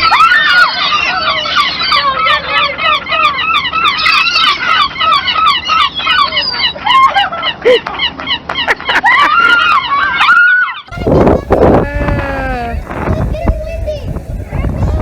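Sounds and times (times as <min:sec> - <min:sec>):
flock of birds calling: 0:00.0 - 0:08.8.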